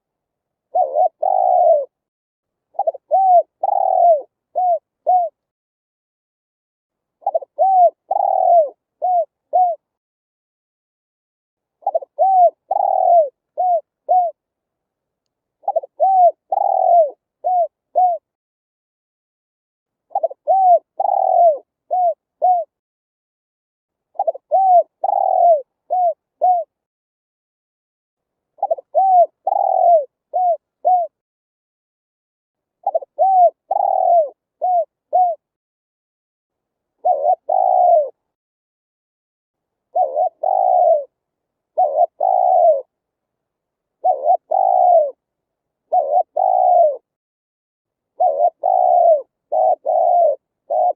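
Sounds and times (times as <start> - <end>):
dove cooing: 0.7 - 2.0, 2.7 - 5.4, 7.2 - 9.9, 11.8 - 14.4, 15.6 - 18.3, 20.1 - 22.7, 24.2 - 26.8, 28.6 - 31.2, 32.8 - 35.4, 37.0 - 38.2, 39.9 - 42.9, 44.0 - 45.2, 45.9 - 47.1, 48.2 - 50.9.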